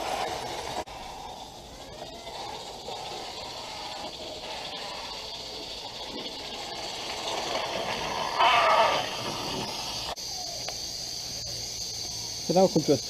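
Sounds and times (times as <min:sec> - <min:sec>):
steam locomotive hissing steam: 0:00.0 - 0:10.2.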